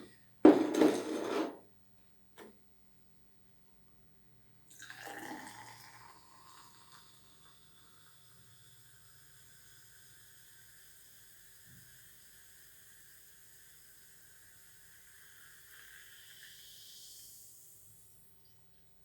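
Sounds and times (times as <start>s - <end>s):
faint hiss: 6.2s - 19.0s.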